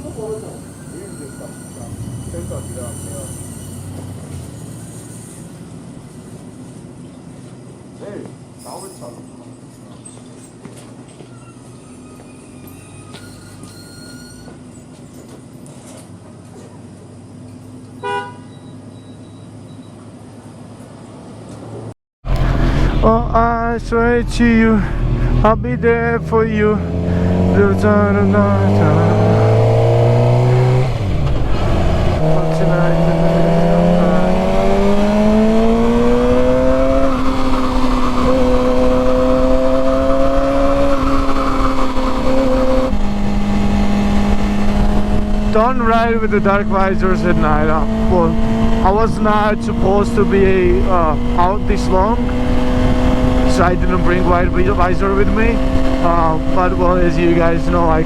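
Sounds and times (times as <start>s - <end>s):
short high horn toot: 0.0s - 5.5s, 18.0s - 19.4s
motorcycle engine drone: 0.0s - 7.9s, 21.8s - 58.0s
wind and road noise: 0.0s - 58.0s
loud voice: 23.0s - 29.4s, 53.5s - 58.0s.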